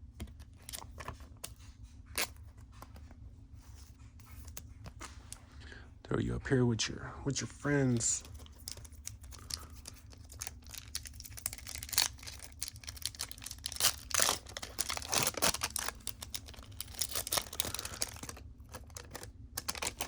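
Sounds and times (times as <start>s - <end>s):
wrappers rustling: 7.9s - 20.0s.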